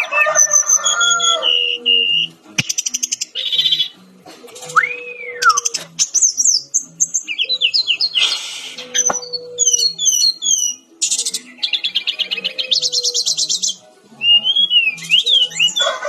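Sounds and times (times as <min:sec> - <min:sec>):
bird singing buzzy trills and chirps: 0:00.0 - 0:04.1, 0:04.7 - 0:16.0.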